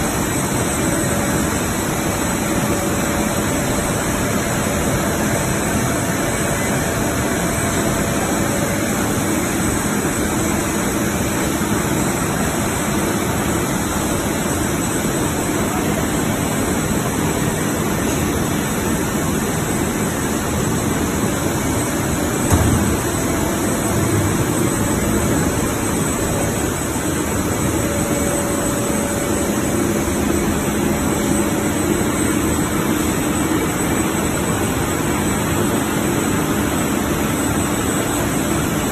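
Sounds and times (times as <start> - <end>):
industrial machinery running: 0.0 - 38.9
brief bump: 22.5 - 23.1.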